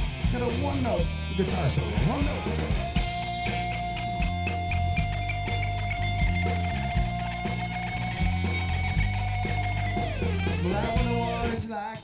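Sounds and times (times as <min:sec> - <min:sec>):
bass and drum groove: 0:00.0 - 0:12.0
electric guitar sustained note: 0:02.1 - 0:11.6.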